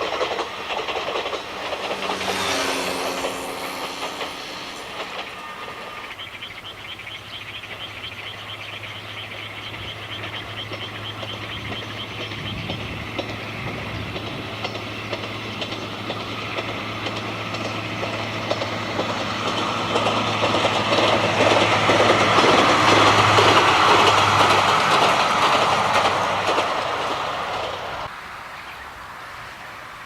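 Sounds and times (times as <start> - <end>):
train wheels clattering: 0.0 - 28.1.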